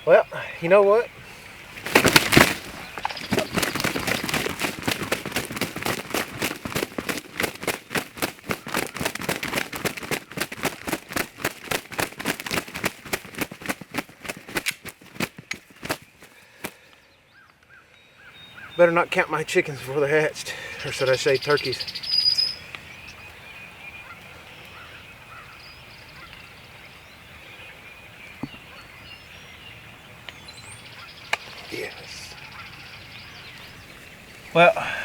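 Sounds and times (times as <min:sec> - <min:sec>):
wings flapping on dry leaves: 0:01.6 - 0:16.9.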